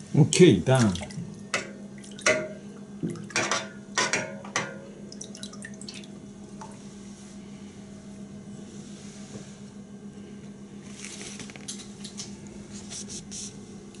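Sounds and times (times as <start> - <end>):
steady low hum: 0.0 - 14.0
water splashing and dripping: 0.7 - 3.6, 4.6 - 6.2.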